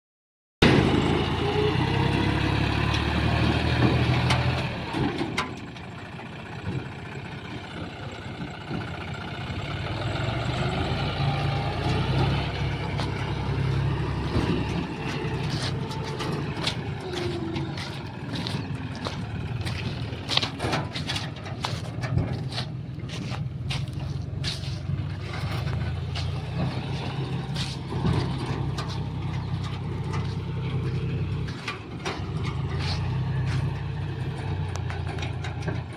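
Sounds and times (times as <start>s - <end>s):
tractor engine running: 0.6s - 35.9s.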